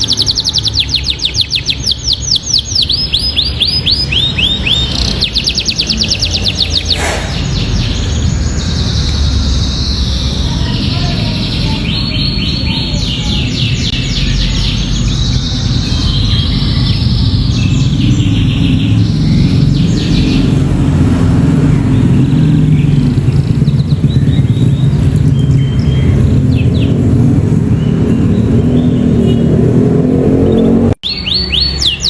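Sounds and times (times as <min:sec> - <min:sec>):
canary singing trills: 0:00.0 - 0:29.8, 0:30.4 - 0:32.0.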